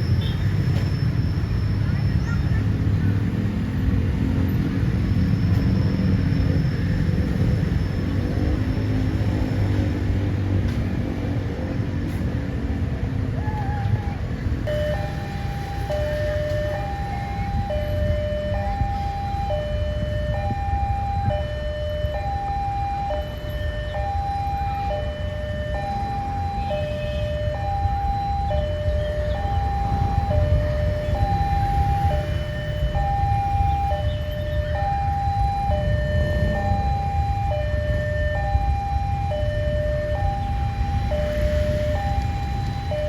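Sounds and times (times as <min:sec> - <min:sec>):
large engine rumbling: 0:00.0 - 0:43.0
level crossing two-tone alarm: 0:14.7 - 0:43.0.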